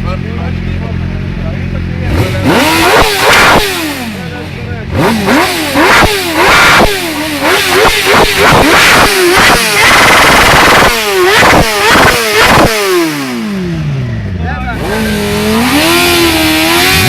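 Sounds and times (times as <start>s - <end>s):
motorcycle engine revving: 0.0s - 17.0s
exhaust cracks: 1.8s - 14.0s.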